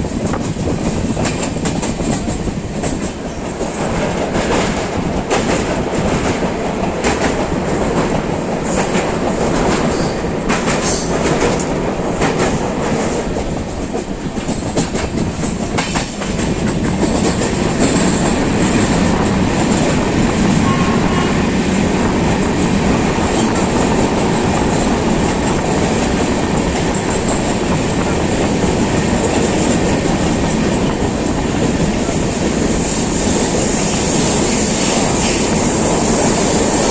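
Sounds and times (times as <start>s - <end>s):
train rumbling: 0.0s - 36.9s
wheels clicking over rail joints: 0.1s - 21.1s.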